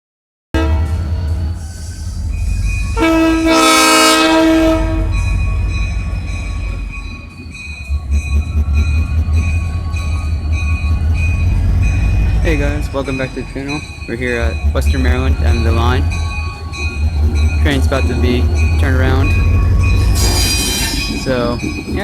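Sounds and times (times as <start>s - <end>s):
locomotive horn blast: 0.6s - 1.4s, 3.0s - 5.3s
train rumbling: 0.6s - 22.0s
high pulsing ringing tone: 4.8s - 22.0s.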